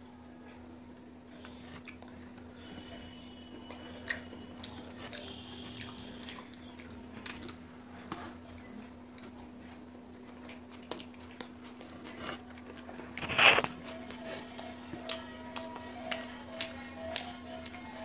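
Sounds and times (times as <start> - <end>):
wet chewing and mouth sounds: 3.7 - 7.6, 8.5 - 14.2.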